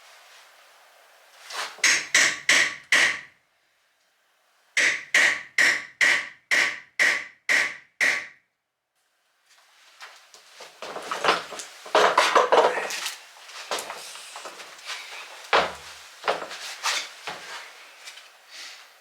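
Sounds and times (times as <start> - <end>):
hammer striking metal: 1.8 - 3.3, 4.8 - 8.4
tools clattering: 10.8 - 14.8.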